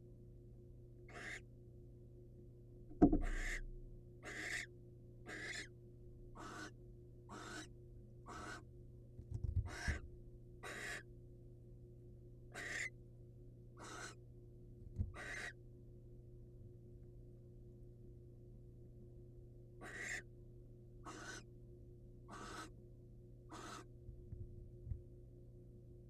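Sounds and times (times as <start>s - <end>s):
owl rasping hissing call: 1.1s - 1.4s, 3.2s - 3.6s, 4.2s - 4.7s, 5.3s - 5.7s, 6.4s - 6.7s, 7.3s - 7.7s, 8.3s - 8.6s, 9.7s - 10.0s, 10.6s - 11.0s, 12.6s - 12.9s, 13.8s - 14.2s, 15.2s - 15.6s, 19.8s - 20.2s, 21.0s - 21.4s, 22.3s - 22.7s, 23.5s - 23.9s
knock in nest box: 2.9s - 3.8s.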